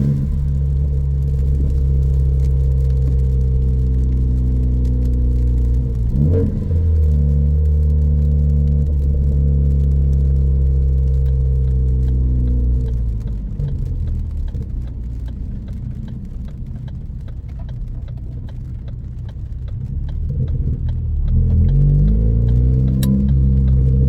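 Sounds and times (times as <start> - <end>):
turbocharged car engine revving: 0.0 - 2.8, 5.3 - 10.9, 19.7 - 24.0.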